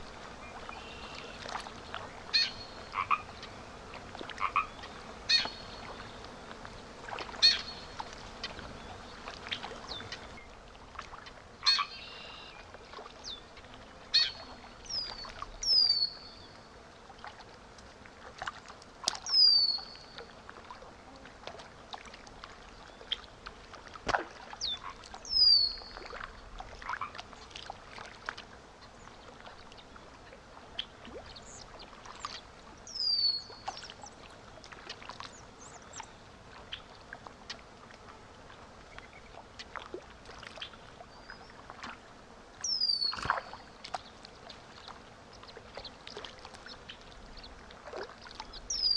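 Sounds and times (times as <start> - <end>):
faint flowing water: 0.0 - 48.9
frogs croaking: 0.4 - 3.6, 4.4 - 6.2, 7.1 - 10.4, 11.6 - 12.6
birds chirping: 9.8 - 10.5, 48.5 - 48.9.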